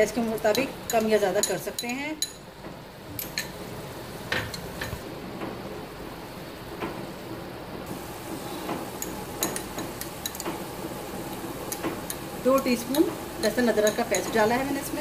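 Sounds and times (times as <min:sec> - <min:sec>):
vegetables sizzling in oil: 0:07.9 - 0:15.0.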